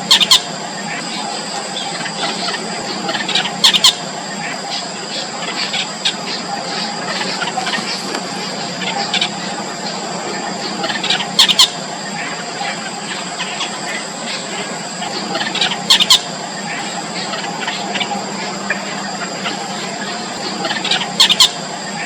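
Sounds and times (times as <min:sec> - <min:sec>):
high-pitched drone: 0:00.0 - 0:22.0
nestlings chirping: 0:00.0 - 0:22.0
nestlings squealing: 0:00.0 - 0:22.0.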